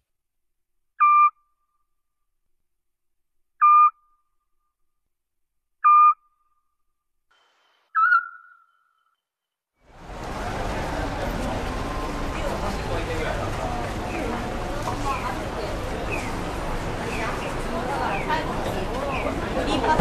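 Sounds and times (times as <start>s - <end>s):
owl whistled calls: 1.0s - 1.3s, 3.6s - 3.9s, 8.0s - 8.8s.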